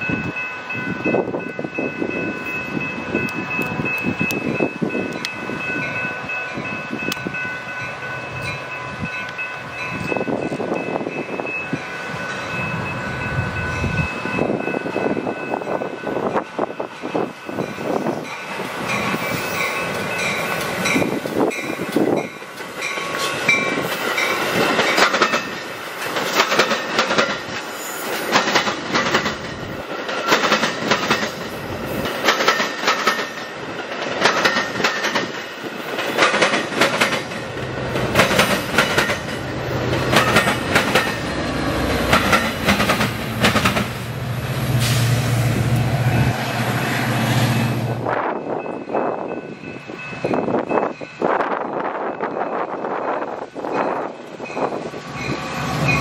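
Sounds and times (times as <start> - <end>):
train wheels clicking over rail joints: 16.3 - 44.2.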